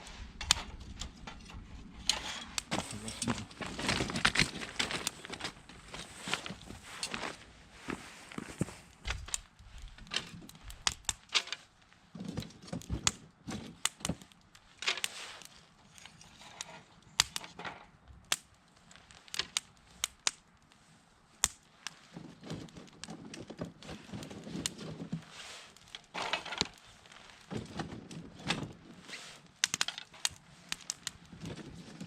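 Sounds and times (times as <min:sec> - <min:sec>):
dry wood crackling and snapping: 0:00.3 - 0:32.0.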